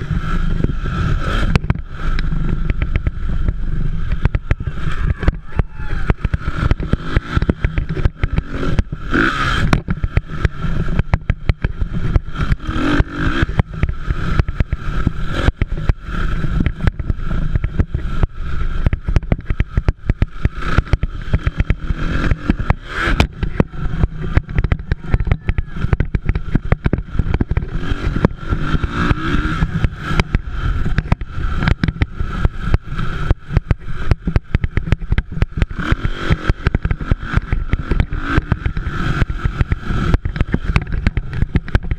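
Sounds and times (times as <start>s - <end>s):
dirt bike engines revving: 0.0s - 41.9s.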